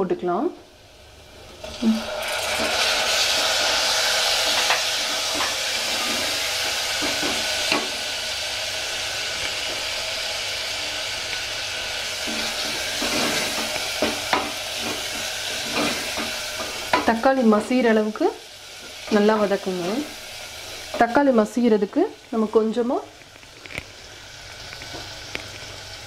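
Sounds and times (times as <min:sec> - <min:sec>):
food sizzling in hot oil: 0:00.7 - 0:26.0
spatula stirring and scraping pot: 0:04.5 - 0:07.8, 0:12.1 - 0:17.1.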